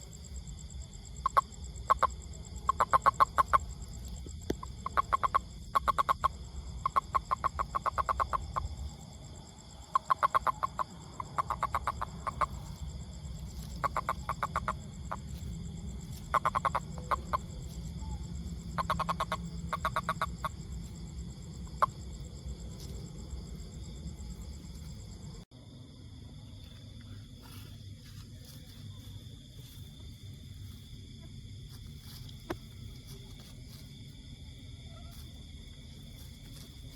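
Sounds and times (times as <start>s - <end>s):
toad calling in short trills: 4.5s - 8.7s, 9.9s - 12.8s, 13.6s - 15.2s, 16.1s - 20.6s
low steady rumble: 10.8s - 36.9s.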